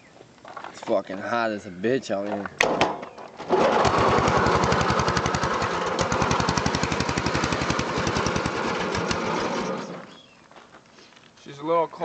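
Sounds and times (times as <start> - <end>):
lawn mower engine running: 3.3 - 10.2.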